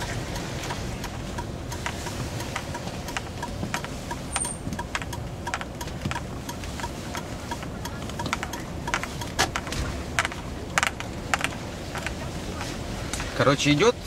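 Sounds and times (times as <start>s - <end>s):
low road rumble: 0.0s - 14.0s
sharp knocks and rattles: 8.2s - 12.2s.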